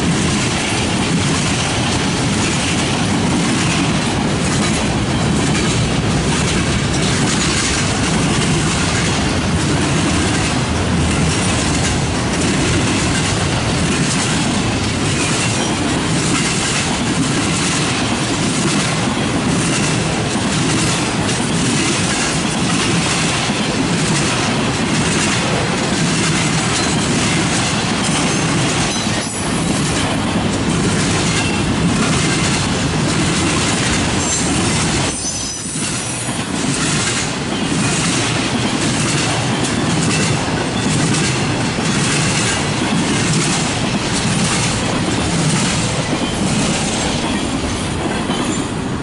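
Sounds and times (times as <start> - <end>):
train wheels clicking: 0.0 - 49.0
high-pitched wheel squeals: 35.1 - 36.3.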